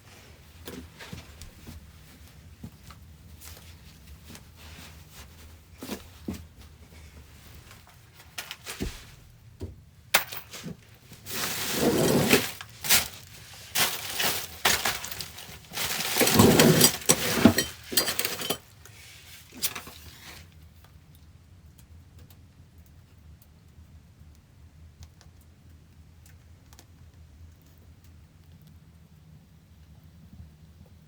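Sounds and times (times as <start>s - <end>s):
objects clinking and clattering: 7.7s - 9.1s, 10.1s - 18.8s
harsh noisy scraping: 11.3s - 18.6s.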